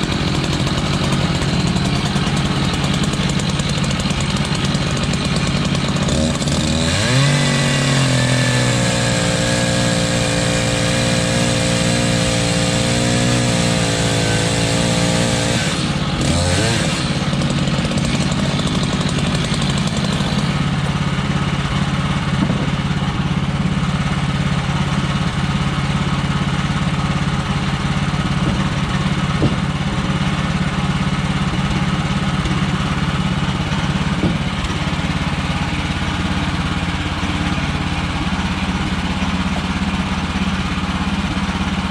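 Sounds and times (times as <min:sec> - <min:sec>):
sawmill gas engine revving: 0:00.0 - 0:41.9.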